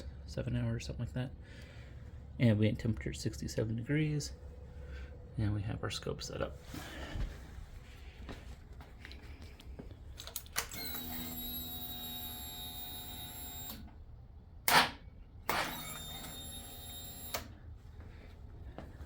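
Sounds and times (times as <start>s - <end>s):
starter motor whirring: 10.6s - 13.9s.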